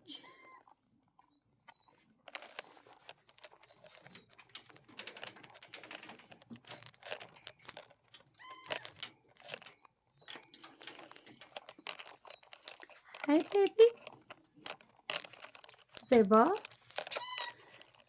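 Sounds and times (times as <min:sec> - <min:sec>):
birds clicking and rattling in cage: 0:01.6 - 0:18.0.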